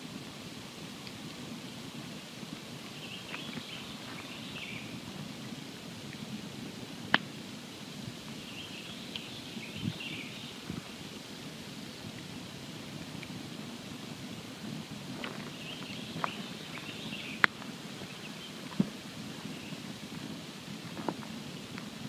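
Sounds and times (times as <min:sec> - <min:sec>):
campfire burning: 0:00.0 - 0:22.0
small fire crackles: 0:00.0 - 0:22.0
faint high twittering: 0:02.9 - 0:05.1, 0:08.3 - 0:10.8, 0:15.2 - 0:20.0.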